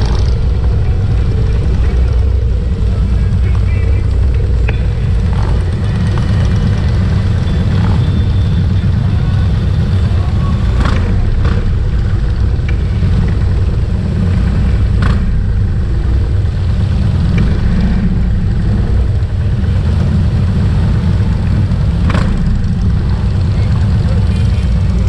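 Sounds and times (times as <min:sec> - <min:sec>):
motorcycle engines rumbling: 0:00.0 - 0:25.0.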